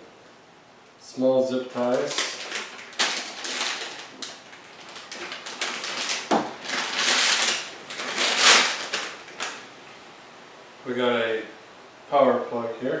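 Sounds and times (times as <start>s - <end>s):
plastic packaging crinkling: 1.6s - 9.7s.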